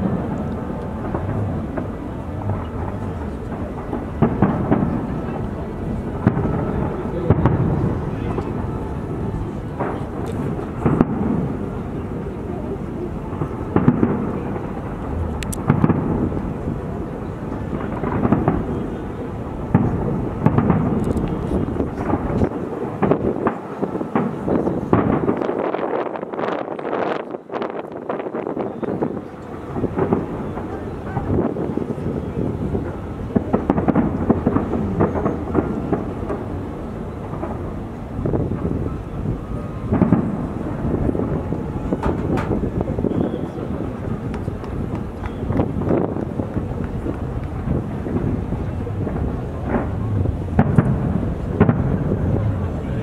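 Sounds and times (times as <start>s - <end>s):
fireworks booming: 0.0s - 53.0s
fireworks sharp bangs: 0.0s - 53.0s.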